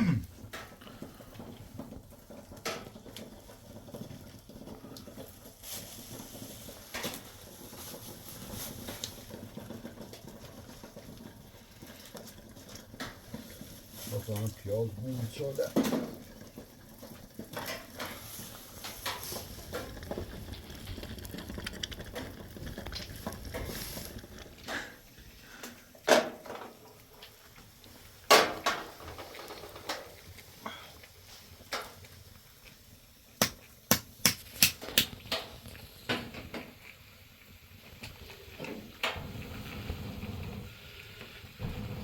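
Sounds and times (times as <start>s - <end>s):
cooking pots and utensils clinking: 15.2s - 20.0s, 28.2s - 30.2s.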